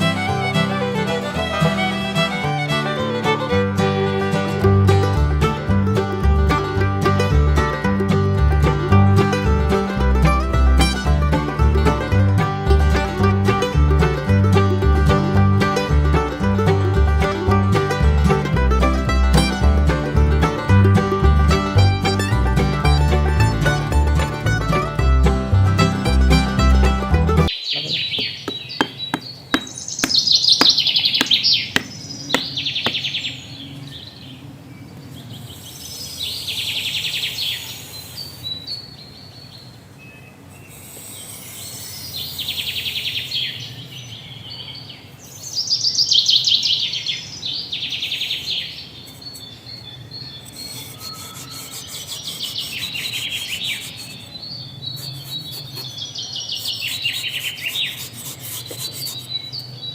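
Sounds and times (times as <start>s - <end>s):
bird trilling: 27.5s - 34.3s, 50.2s - 59.9s.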